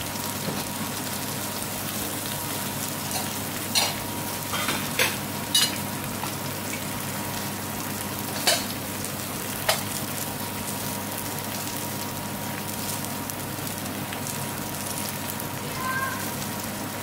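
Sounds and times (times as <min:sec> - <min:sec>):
onions sizzling in pan: 0:00.0 - 0:17.0.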